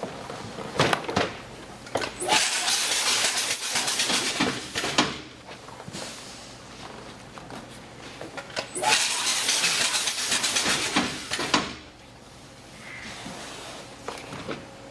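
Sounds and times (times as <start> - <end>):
sharp machine clack: 2.2 - 4.9, 8.8 - 11.7
banding machine hissing and clicking: 8.7 - 11.8.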